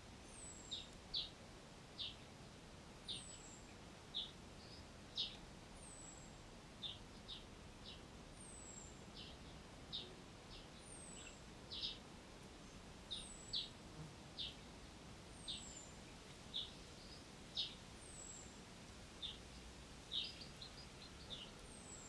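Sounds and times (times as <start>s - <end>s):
birds chirping: 19.2s - 22.0s.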